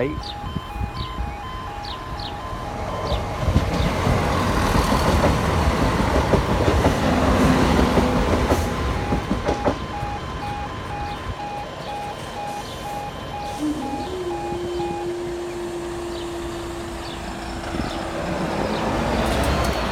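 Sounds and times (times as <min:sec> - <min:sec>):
pulsing level crossing alarm: 0:00.0 - 0:06.4, 0:07.6 - 0:18.0
diesel train passing: 0:00.0 - 0:19.9.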